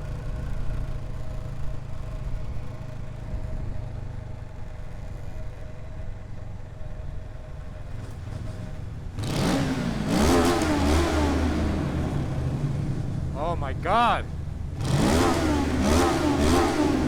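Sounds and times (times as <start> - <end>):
motorcycle engine revving: 9.2 - 13.4, 14.3 - 17.0.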